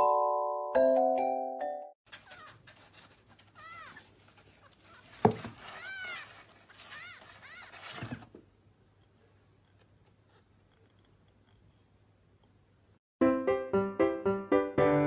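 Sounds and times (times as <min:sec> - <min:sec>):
cat meowing: 0:04.9 - 0:07.9.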